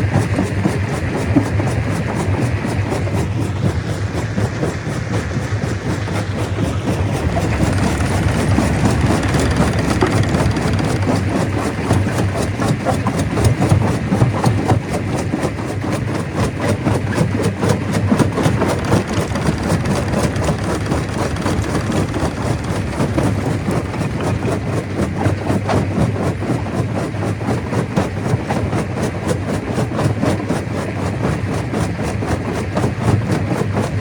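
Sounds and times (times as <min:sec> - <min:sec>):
stone crusher machine drone: 0:05.7 - 0:13.5, 0:17.7 - 0:25.1.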